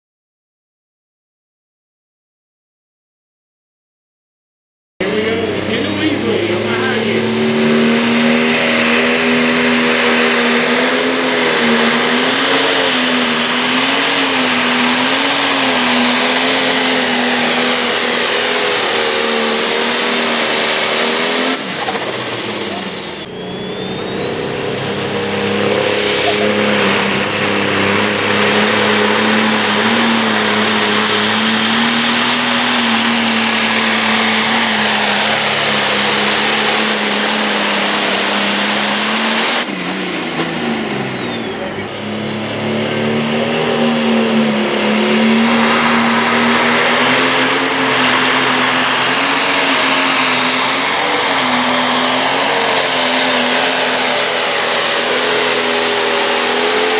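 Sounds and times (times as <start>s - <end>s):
diesel engine under load: 5.0s - 56.9s
high turbo whine: 5.0s - 56.9s.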